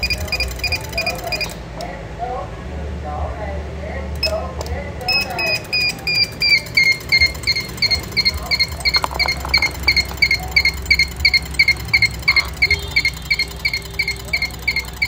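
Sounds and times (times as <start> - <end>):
electronic beeper beeping: 0.0 - 1.6, 5.1 - 15.0.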